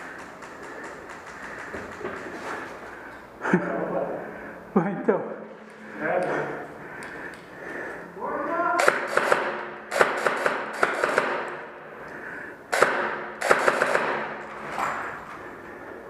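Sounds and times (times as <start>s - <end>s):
airsoft guns firing: 8.8s - 11.7s, 12.7s - 14.4s.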